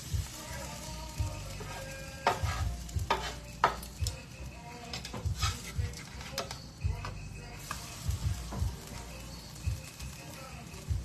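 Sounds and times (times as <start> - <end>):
batter sizzling in a skillet: 0.0 - 11.0
metal utensil scraping a pan: 1.5 - 3.9, 4.8 - 6.7.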